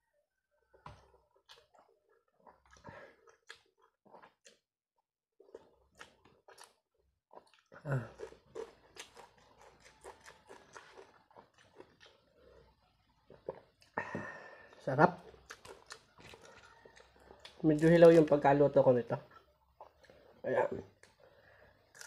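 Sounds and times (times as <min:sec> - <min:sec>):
person chewing with lip smacks: 0:05.4 - 0:12.6, 0:15.2 - 0:17.6.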